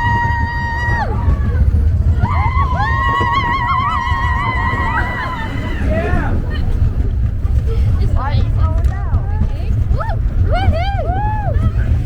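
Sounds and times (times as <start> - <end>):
riders screaming: 0.0 - 6.6
roller coaster rumble: 0.0 - 12.0.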